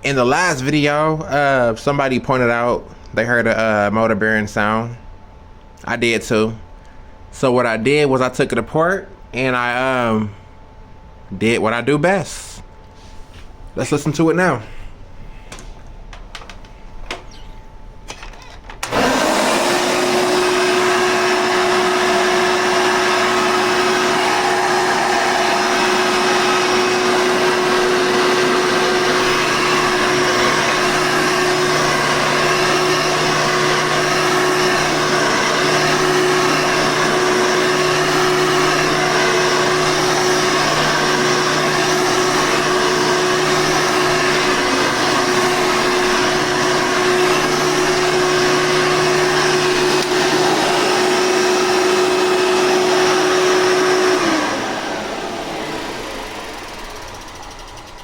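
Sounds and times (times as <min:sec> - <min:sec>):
vacuum cleaner motor humming: 0:18.2 - 0:58.0.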